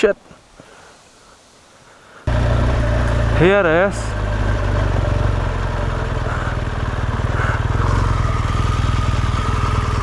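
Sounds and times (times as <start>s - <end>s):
motorcycle engine running: 2.3s - 10.0s.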